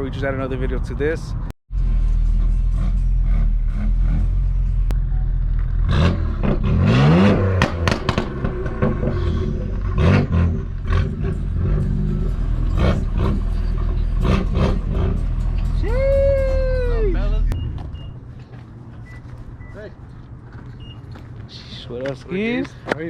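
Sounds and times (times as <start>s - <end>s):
car engine droning and revving: 1.3s - 18.2s.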